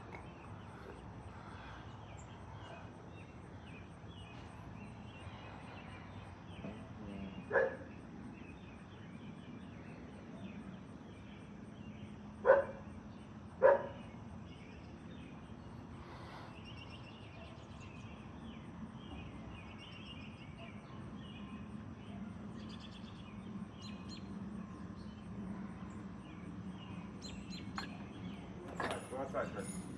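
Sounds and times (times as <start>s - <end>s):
small birds chirping: 0.0s - 29.8s
low outdoor rumble: 0.0s - 29.9s
dog barking: 7.5s - 7.9s, 12.4s - 12.8s, 13.6s - 14.0s.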